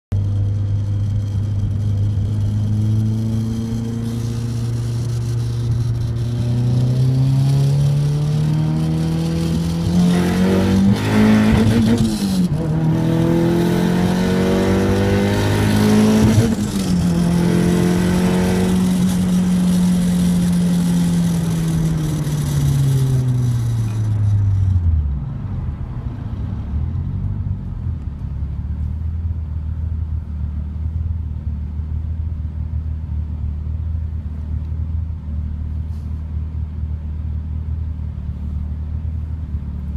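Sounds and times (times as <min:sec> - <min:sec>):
turbocharged car engine revving: 0:00.1 - 0:25.5.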